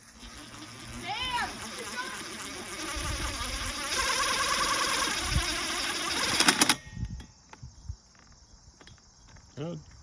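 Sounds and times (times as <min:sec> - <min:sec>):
power drill grinding metal: 0:00.0 - 0:06.8.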